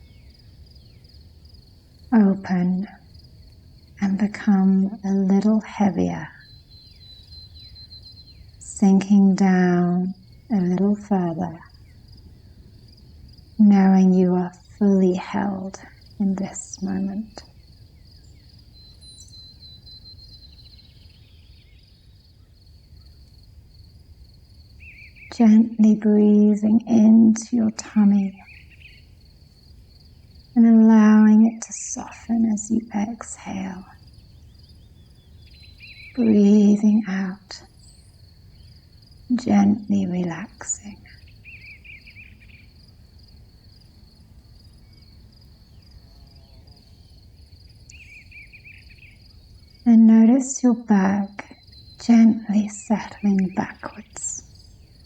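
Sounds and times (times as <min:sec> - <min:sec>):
soft bird chirps: 0:00.0 - 0:23.8, 0:24.6 - 0:42.8, 0:44.1 - 0:55.0
faint crickets chirping: 0:00.0 - 0:55.0
faint low rumble: 0:08.5 - 0:20.0, 0:29.2 - 0:41.2
low background rumble: 0:23.6 - 0:41.4.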